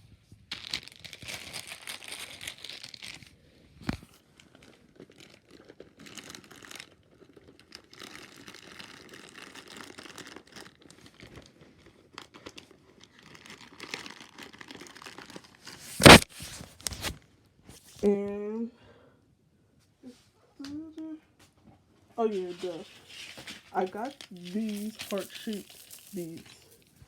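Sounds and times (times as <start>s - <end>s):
plastic packaging crinkling: 0.5s - 17.2s, 22.3s - 27.0s.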